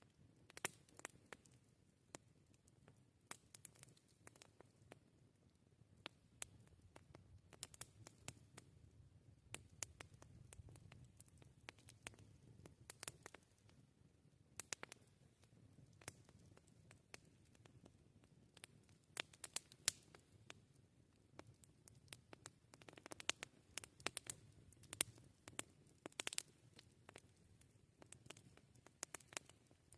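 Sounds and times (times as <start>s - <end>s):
campfire crackling: 0.1s - 29.9s.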